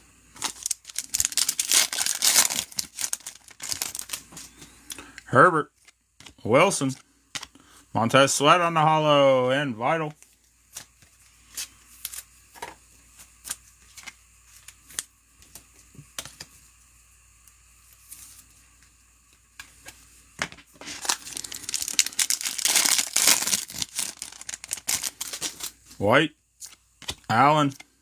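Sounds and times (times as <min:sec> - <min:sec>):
wrapper tearing and crinkling: 0:00.4 - 0:04.3, 0:20.8 - 0:25.8.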